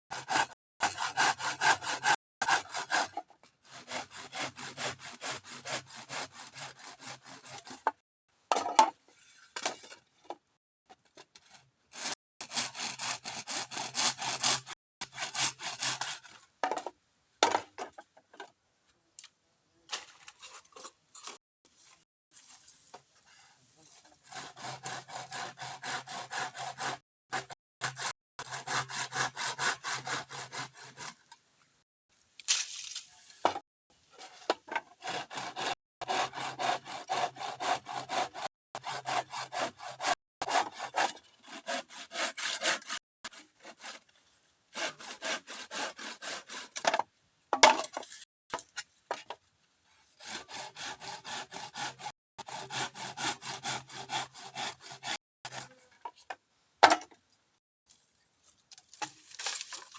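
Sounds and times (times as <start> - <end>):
hand saw cutting bamboo: 0.1 - 8.0, 11.4 - 16.4, 23.9 - 31.3, 34.2 - 46.9, 49.9 - 55.9.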